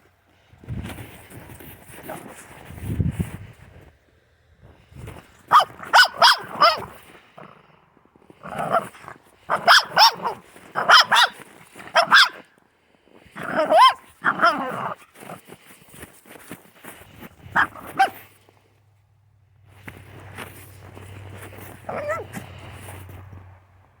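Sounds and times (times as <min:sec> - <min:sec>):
dog barking loudly: 0:05.5 - 0:07.5, 0:08.4 - 0:12.5, 0:13.4 - 0:15.0, 0:17.5 - 0:18.3, 0:21.5 - 0:22.5.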